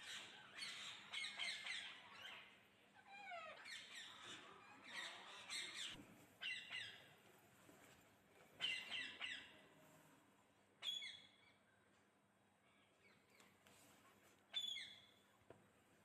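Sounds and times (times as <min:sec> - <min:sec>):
parrots chirping: 0:00.0 - 0:07.0, 0:08.6 - 0:09.5.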